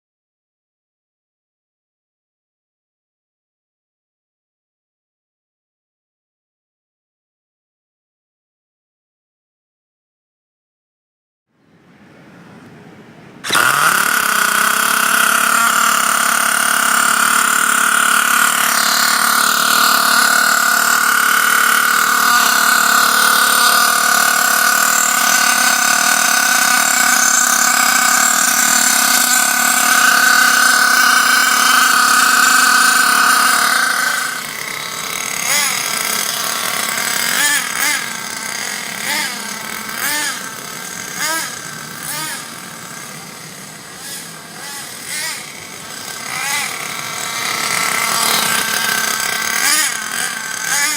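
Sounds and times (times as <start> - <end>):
engine throttle blips: 12.6 - 50.9
small glow engine running: 13.4 - 50.9.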